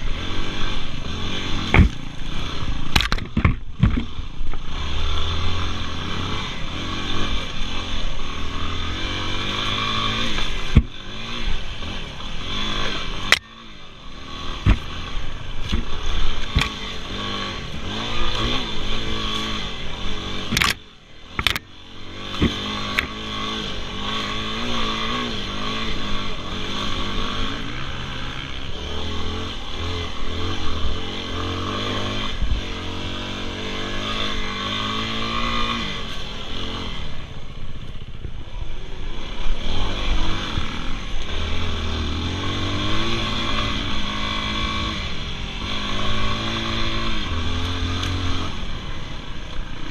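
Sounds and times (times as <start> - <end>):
dirt bike engine revving: 0.0 - 49.9
sharp clicks: 20.5 - 20.8.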